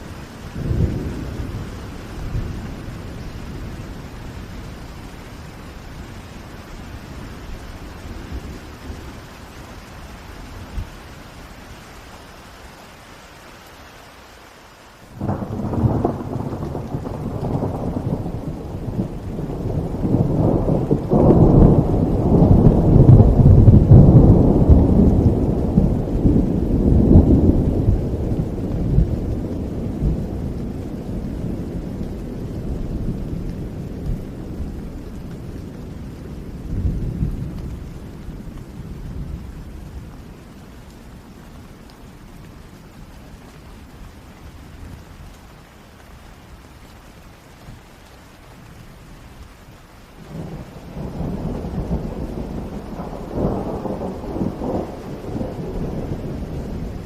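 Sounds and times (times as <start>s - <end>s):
rolling thunder: 0.0s - 5.2s, 15.2s - 40.5s, 50.2s - 57.0s
steady rain falling: 0.0s - 57.0s.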